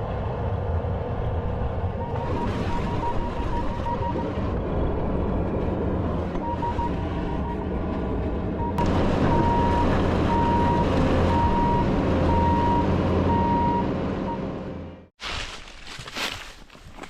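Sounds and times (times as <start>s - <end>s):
diesel engine droning: 0.0s - 15.1s
backup alarm beeping: 2.0s - 4.6s, 6.3s - 7.7s, 8.6s - 14.5s.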